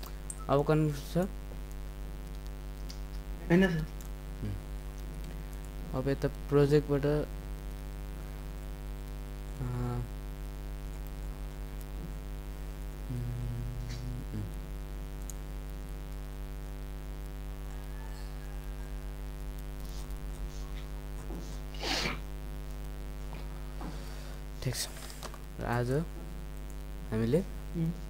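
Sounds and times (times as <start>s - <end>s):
electrical mains hum: 0.0s - 28.0s
person murmuring: 3.5s - 4.7s, 9.6s - 10.1s, 13.1s - 14.6s.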